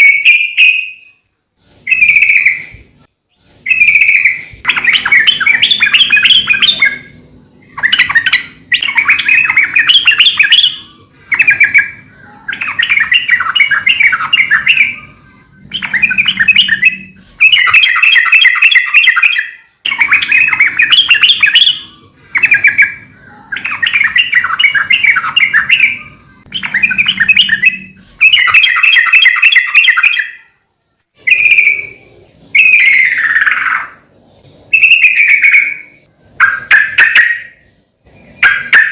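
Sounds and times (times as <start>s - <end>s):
bulbul singing: 0.0s - 30.6s, 31.2s - 38.9s.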